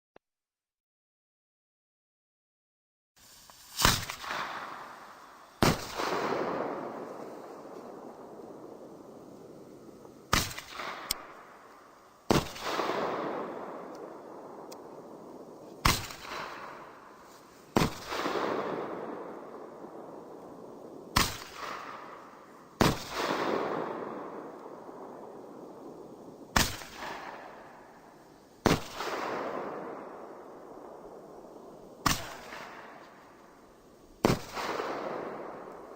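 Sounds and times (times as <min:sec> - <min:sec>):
hiss of falling sparks: 0:03.2 - 0:06.1
firework shell bursting: 0:03.2 - 0:14.9
firework launch bang: 0:03.5 - 0:08.8, 0:15.8 - 0:19.0.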